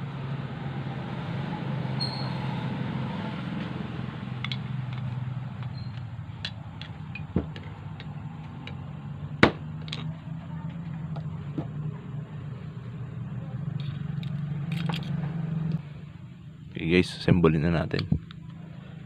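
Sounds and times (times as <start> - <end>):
steady low hum: 3.1 - 19.0
dull knock: 9.4 - 9.6.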